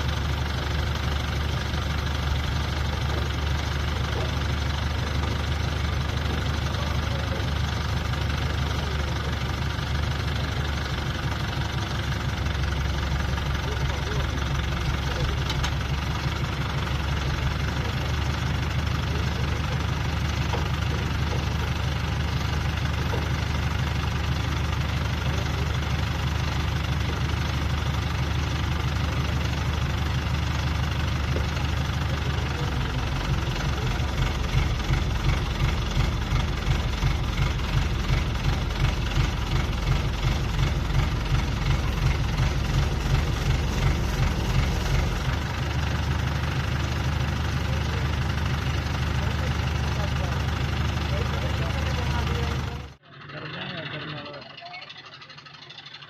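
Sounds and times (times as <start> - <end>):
diesel engine idling with knocking: 0.0 - 56.0
regular pulsing: 20.4 - 47.0.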